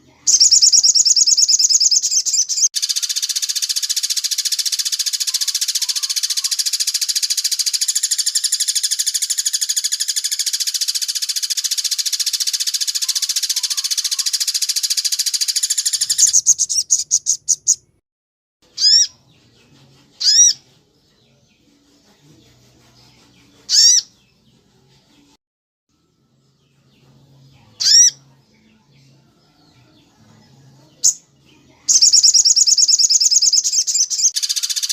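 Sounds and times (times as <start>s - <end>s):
songbird trilling: 0.2s - 17.9s, 18.8s - 19.1s, 20.2s - 20.6s, 23.7s - 24.1s, 27.8s - 28.2s, 31.9s - 34.9s.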